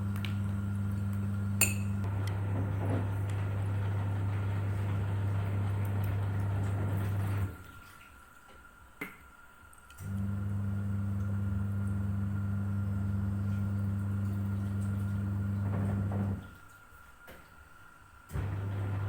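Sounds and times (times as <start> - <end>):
electric appliance humming: 0.0 - 7.6, 10.0 - 16.5, 18.3 - 19.0.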